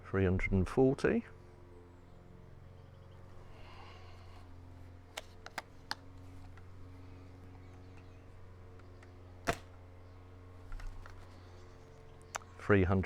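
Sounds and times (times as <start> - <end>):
light mechanical clicks: 5.1 - 6.7
airsoft rifle shot pop: 9.4 - 9.7.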